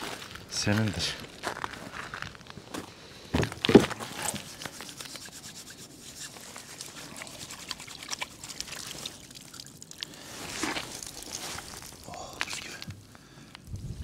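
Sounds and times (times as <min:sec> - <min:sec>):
water trickling and dripping: 0:06.4 - 0:12.9.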